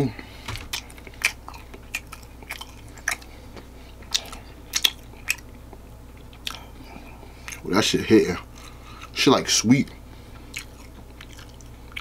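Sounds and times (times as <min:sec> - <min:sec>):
chewing with mouth smacks: 0:00.6 - 0:03.3, 0:03.9 - 0:07.7, 0:10.2 - 0:12.0.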